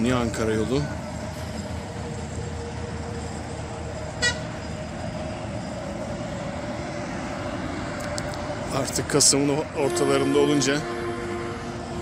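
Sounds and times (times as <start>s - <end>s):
road traffic rumble: 0.0s - 12.0s
car horn toot: 4.2s - 4.5s, 9.8s - 12.0s.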